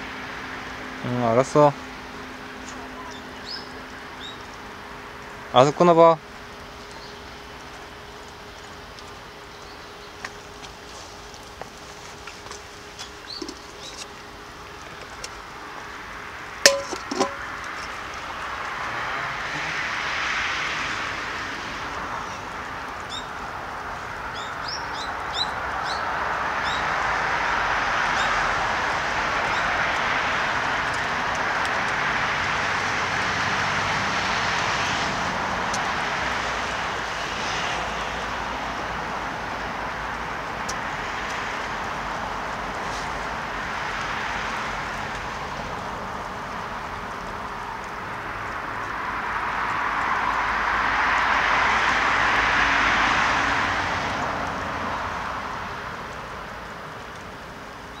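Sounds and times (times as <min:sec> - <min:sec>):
passing traffic: 0:00.0 - 0:58.0
sharp knock: 0:16.7 - 0:17.4.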